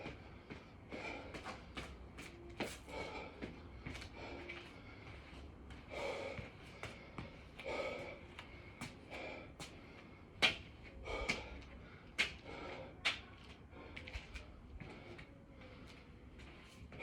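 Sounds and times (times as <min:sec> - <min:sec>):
man breathing hard: 0:00.0 - 0:13.0.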